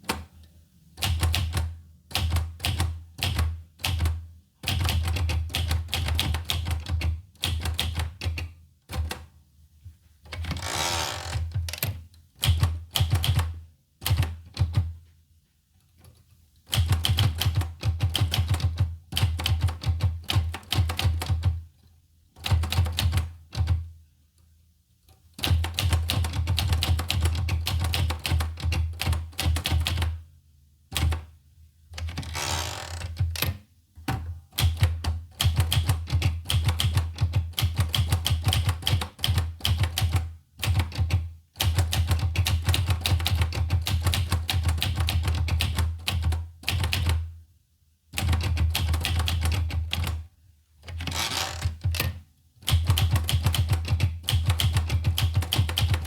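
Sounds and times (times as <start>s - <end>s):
typewriter key strikes: 33.2s - 47.2s, 48.2s - 50.2s, 51.0s - 56.0s.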